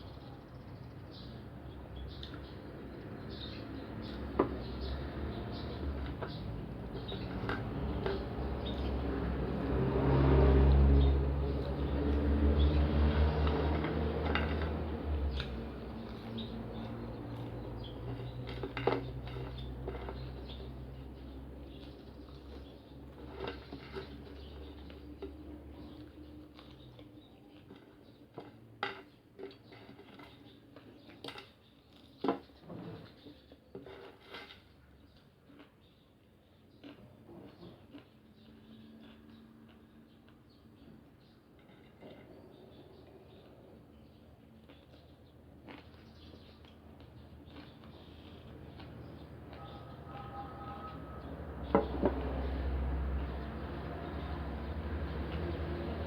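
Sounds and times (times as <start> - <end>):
soft chewing: 13.5 - 56.0
chewing and mouth noises: 35.1 - 40.5, 44.4 - 50.6.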